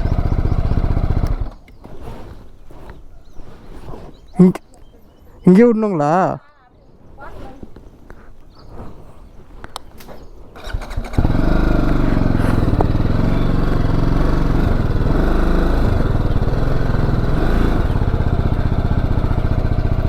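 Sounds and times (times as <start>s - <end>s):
motorcycle engine at low revs: 0.0s - 4.3s, 10.6s - 20.0s.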